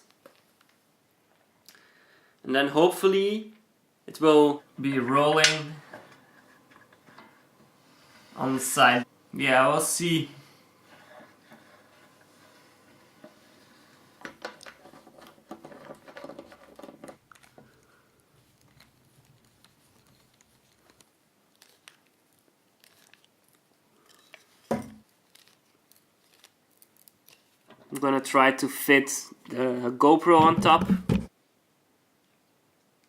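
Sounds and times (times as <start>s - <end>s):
loud knock: 30.4s - 31.3s.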